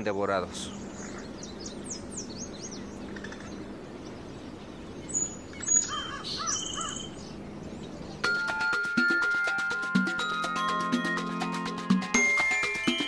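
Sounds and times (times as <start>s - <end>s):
wild birds calling: 0.0s - 8.6s.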